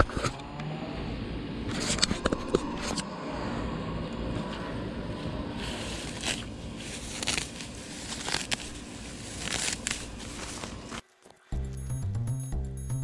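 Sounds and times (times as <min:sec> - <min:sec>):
low rumble: 0:00.3 - 0:11.0
dry grass rustling and ripping: 0:05.5 - 0:11.4.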